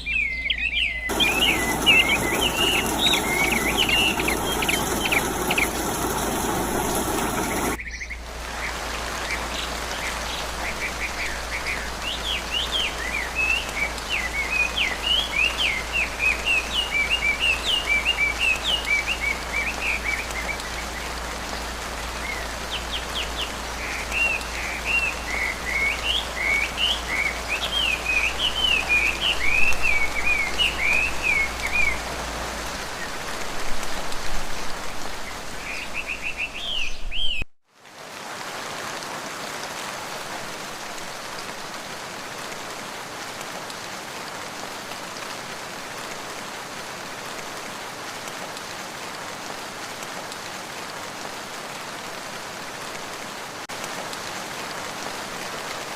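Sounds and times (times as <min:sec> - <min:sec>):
bird chirping rapidly: 0:00.0 - 0:08.2
rain falling in forest: 0:00.0 - 0:55.9.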